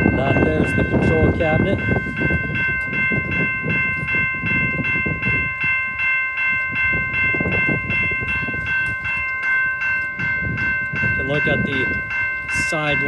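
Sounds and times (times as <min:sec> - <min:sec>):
railroad crossing bell ringing: 0:00.0 - 0:13.0.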